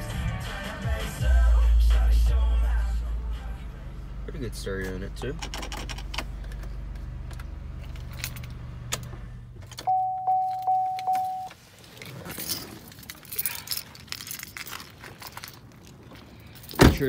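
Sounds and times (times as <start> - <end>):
car engine idling: 0.0 - 10.8
keys jangling: 7.8 - 8.6, 11.9 - 17.0
car warning chime: 9.8 - 11.6.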